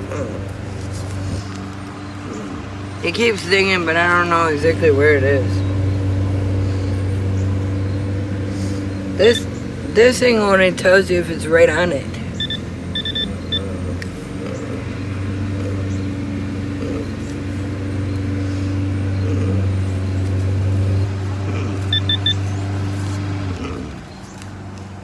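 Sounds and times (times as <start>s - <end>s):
low mechanical hum: 0.0s - 25.0s
metal detector beeping: 12.4s - 13.7s, 21.8s - 22.5s.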